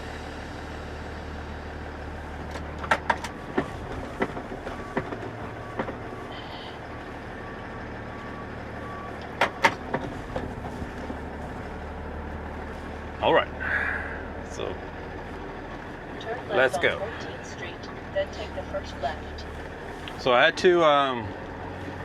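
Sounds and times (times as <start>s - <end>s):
truck engine humming: 0.0s - 22.0s
sharp clicks and knocks: 2.5s - 6.0s, 9.2s - 11.2s.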